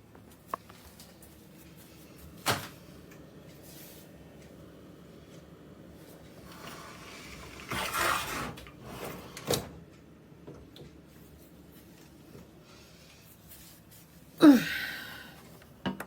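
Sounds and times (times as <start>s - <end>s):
sliding scrape: 6.4s - 9.4s
low steady hum: 9.6s - 16.0s.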